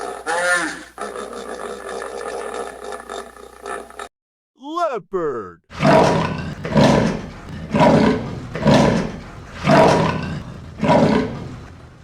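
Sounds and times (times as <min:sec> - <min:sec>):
leopard roaring: 0:05.7 - 0:12.0.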